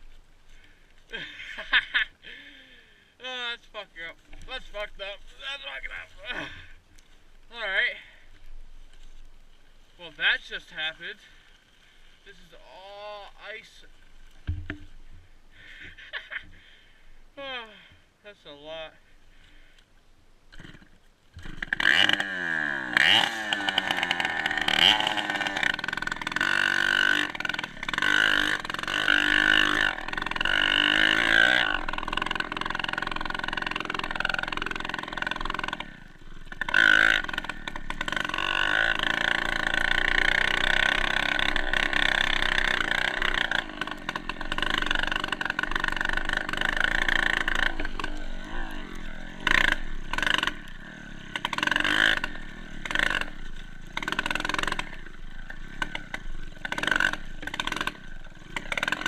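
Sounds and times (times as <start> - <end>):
dirt bike engine revving: 20.5 - 59.0.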